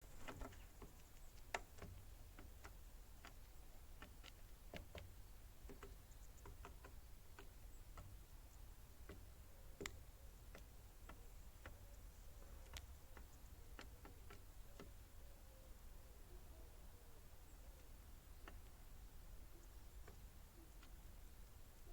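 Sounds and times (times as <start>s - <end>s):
faint clicks and taps: 0.1s - 15.2s, 17.8s - 21.9s.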